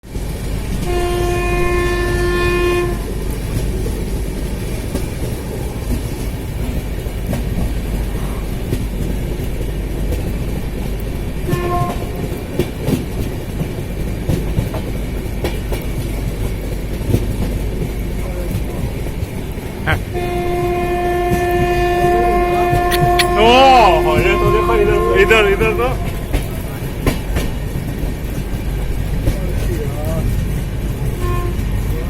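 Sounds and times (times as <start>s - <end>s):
train rumbling on rails: 0.0s - 32.0s
train horn: 0.8s - 3.2s, 11.4s - 12.4s, 20.1s - 26.5s, 31.1s - 31.7s.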